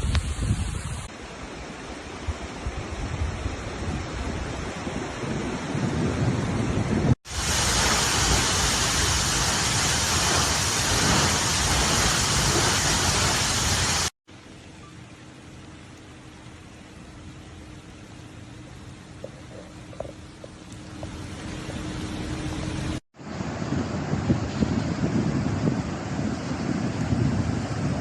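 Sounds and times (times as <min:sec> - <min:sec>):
floodwater rushing: 0:07.2 - 0:28.0.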